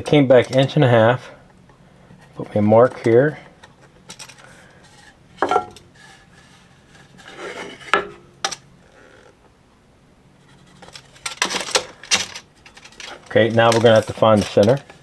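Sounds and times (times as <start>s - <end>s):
tools clattering: 10.8s - 14.9s.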